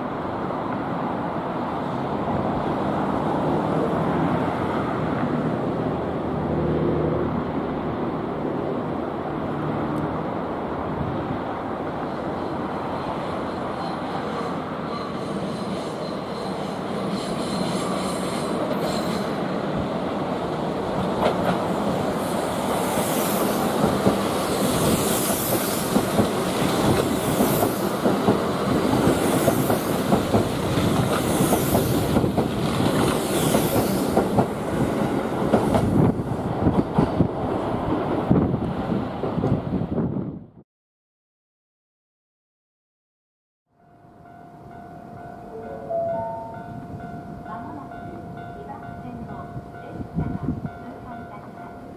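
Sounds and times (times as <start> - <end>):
electric train rumbling: 0.0 - 40.6, 43.8 - 51.9
high-pitched wheel squeal: 12.3 - 19.4.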